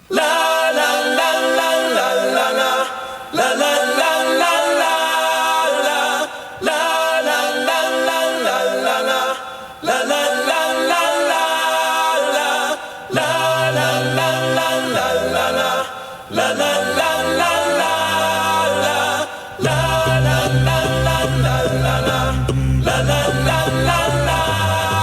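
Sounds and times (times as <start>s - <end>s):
a cappella voices singing: 0.0s - 25.0s
low bass voice singing: 16.6s - 25.0s.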